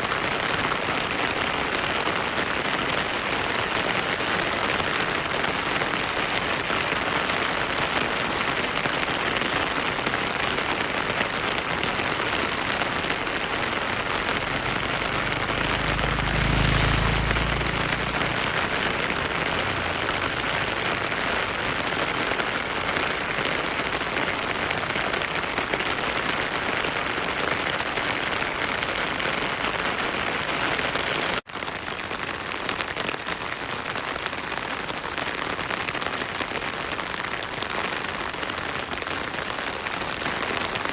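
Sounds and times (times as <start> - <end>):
heavy rain falling: 0.0 - 40.9
stream water flowing: 12.7 - 22.8.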